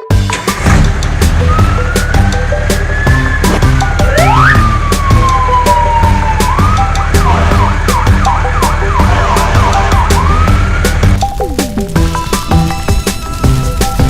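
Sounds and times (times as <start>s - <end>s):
upbeat background music: 0.0s - 14.0s
cartoon siren sound effect: 3.0s - 10.7s.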